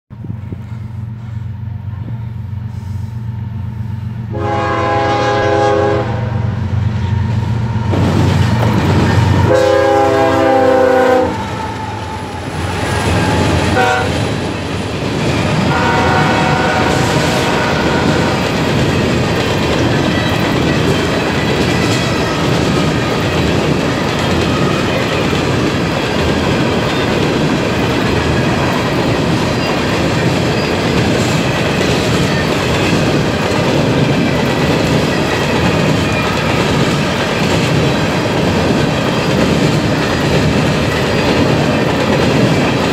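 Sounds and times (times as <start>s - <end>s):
train wheels rumbling and clattering: 0.1s - 42.9s
locomotive horn: 4.3s - 6.7s, 9.2s - 14.4s, 15.6s - 18.5s.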